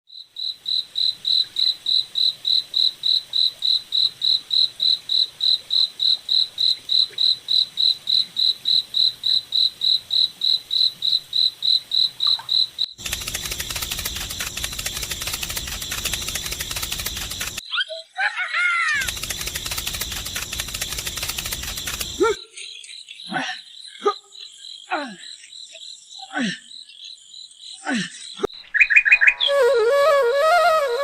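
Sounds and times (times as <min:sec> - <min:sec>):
insect chirping: 0:00.1 - 0:18.0, 0:18.9 - 0:31.0
rapid rattling noise: 0:13.0 - 0:17.6, 0:19.0 - 0:22.2.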